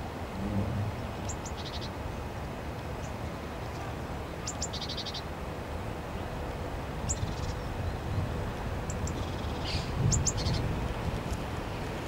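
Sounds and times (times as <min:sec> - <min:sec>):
low rumble: 0:00.2 - 0:01.3
small bird calling with trill: 0:04.4 - 0:05.2, 0:08.9 - 0:10.6.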